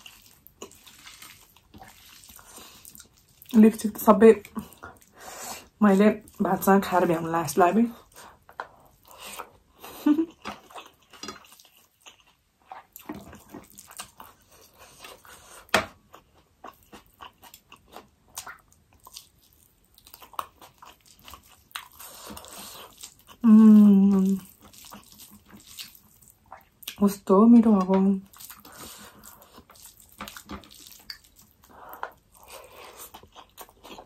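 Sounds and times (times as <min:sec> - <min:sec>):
chewing food: 0:00.0 - 0:34.0
wet lip smacks and mouth clicks: 0:29.6 - 0:32.3.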